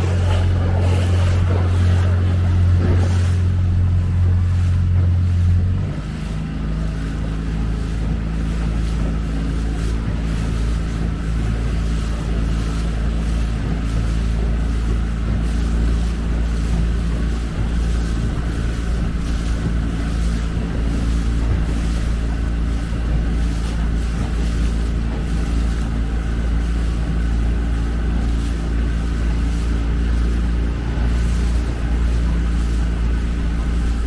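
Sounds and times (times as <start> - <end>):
motorboat engine running: 0.0 - 34.0.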